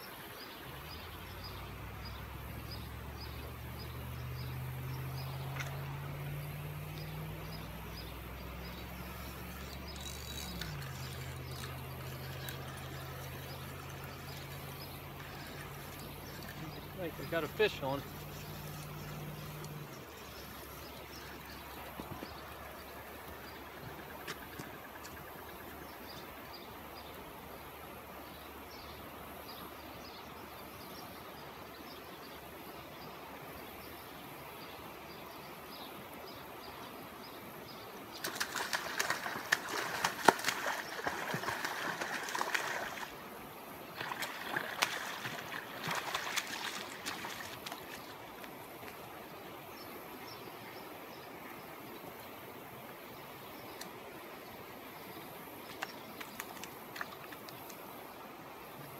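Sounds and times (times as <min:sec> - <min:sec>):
fish splashing and rattling: 0:09.1 - 0:20.4, 0:38.2 - 0:43.2, 0:44.0 - 0:48.2.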